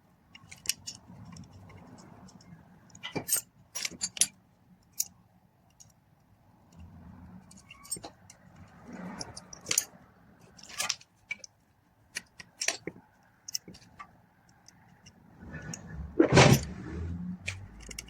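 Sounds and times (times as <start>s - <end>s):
metallic tool clicks and clinks: 17.5s - 18.0s.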